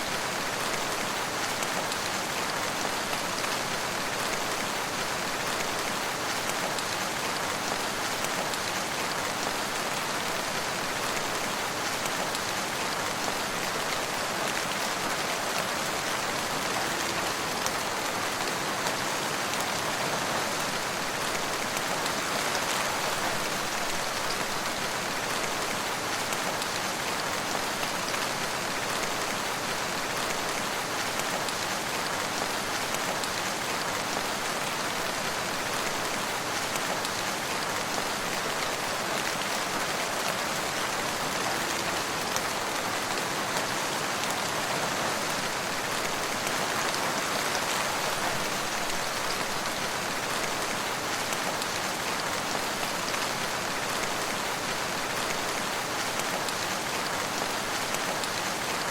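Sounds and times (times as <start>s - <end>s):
rain falling: 0.0s - 58.9s.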